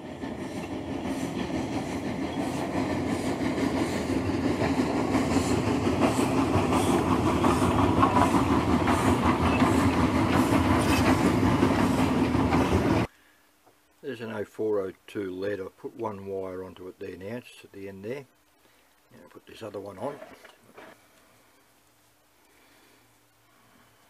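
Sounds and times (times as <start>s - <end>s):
train wheels clicking over rail joints: 0.0s - 13.1s.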